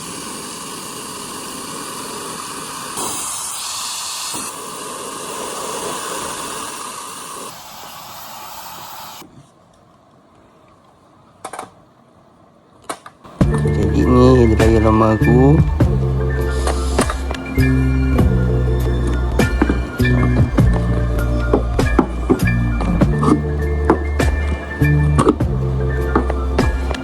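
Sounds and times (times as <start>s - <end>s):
hairdryer blowing: 0.0s - 9.2s, 15.7s - 24.8s.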